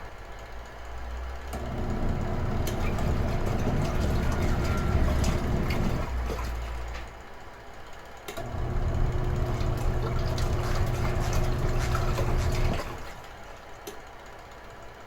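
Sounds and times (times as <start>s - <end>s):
washing machine motor humming: 1.5s - 7.3s, 8.3s - 13.8s.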